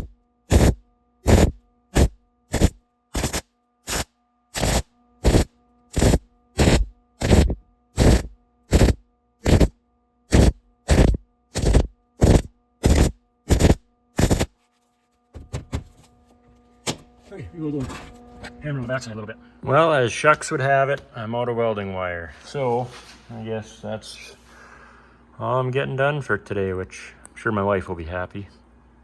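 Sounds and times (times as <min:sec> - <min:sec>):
hammer pounding sheet metal: 0:04.6 - 0:09.7, 0:10.3 - 0:14.5.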